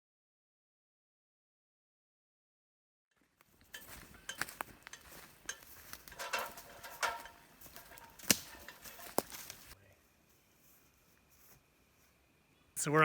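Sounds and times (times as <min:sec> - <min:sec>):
hard objects clicking and clinking: 0:03.7 - 0:09.8.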